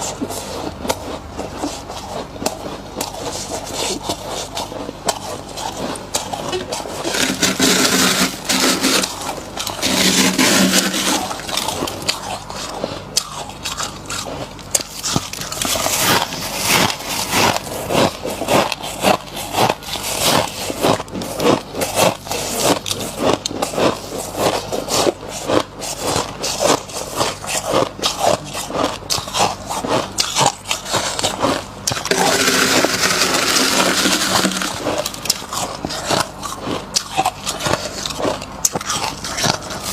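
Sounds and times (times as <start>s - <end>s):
crunching frost being chewed: 0.0s - 39.9s
scraping frost by hand: 7.0s - 11.6s.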